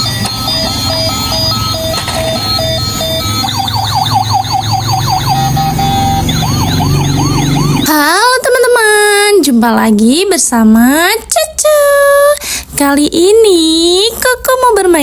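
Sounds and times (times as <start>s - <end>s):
electronic siren: 0.0s - 8.0s.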